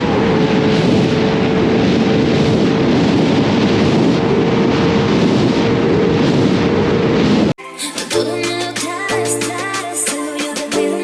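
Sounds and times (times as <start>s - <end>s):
wind noise on microphone: 0.0s - 7.6s.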